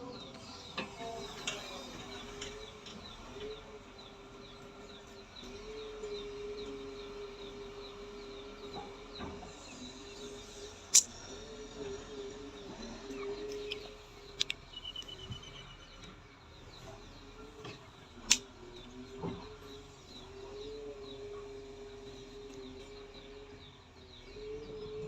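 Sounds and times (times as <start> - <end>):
birds chirping: 0.0 - 25.0
sharp clicks: 10.9 - 11.2, 13.7 - 15.2.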